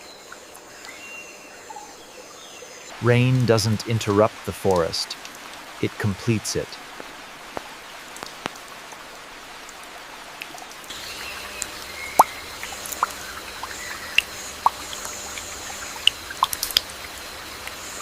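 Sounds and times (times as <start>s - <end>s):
rain hissing: 2.8s - 18.0s
single raindrops landing: 6.8s - 17.8s.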